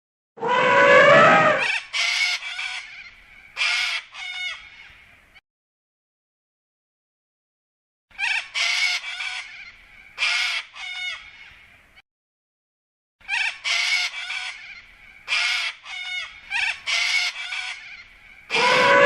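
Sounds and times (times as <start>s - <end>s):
bird harsh rasping calls: 0.4s - 5.0s, 13.2s - 19.0s.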